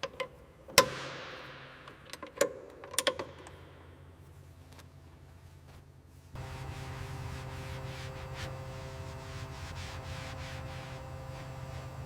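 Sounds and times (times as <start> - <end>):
hiss: 6.4 - 12.0.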